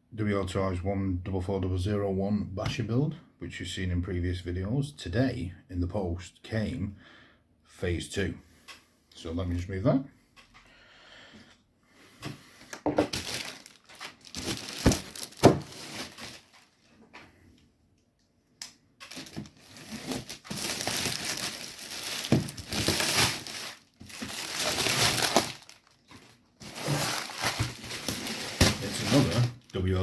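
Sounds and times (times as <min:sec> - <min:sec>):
packaging torn and crumpled: 0:13.1 - 0:16.9, 0:19.0 - 0:30.0.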